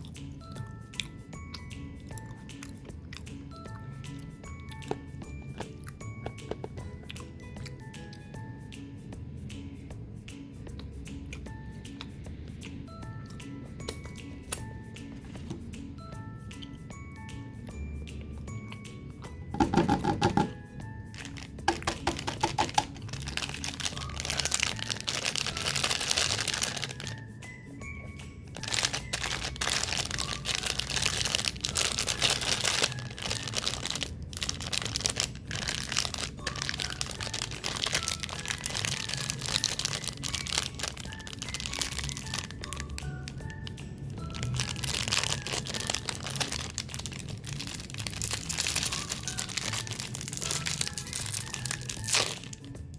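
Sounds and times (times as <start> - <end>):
background music: 0.0 - 52.9
plastic packaging crinkling: 19.6 - 27.3, 28.5 - 52.7.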